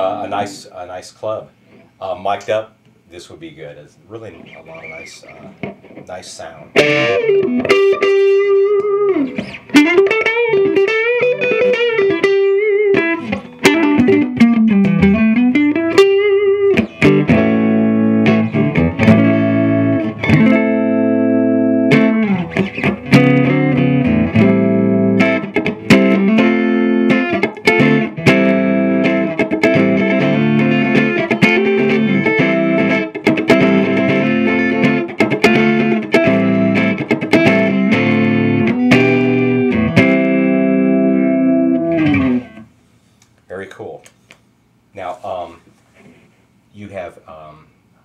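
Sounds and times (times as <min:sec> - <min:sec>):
electric guitar lead and chords: 0:06.7 - 0:42.7.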